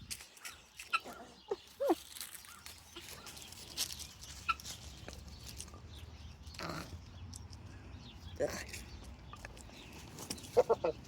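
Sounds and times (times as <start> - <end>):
chickens clucking: 9.3 - 11.0.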